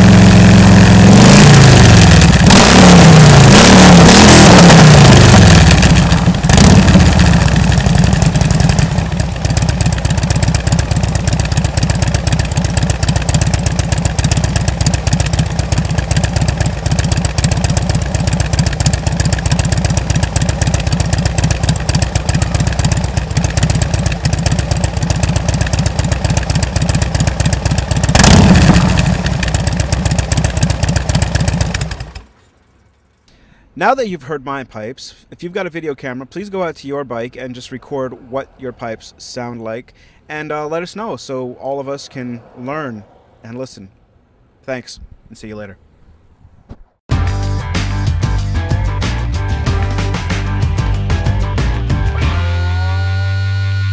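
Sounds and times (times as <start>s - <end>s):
motorcycle engine idling and revving: 0.0s - 33.4s, 47.4s - 53.9s.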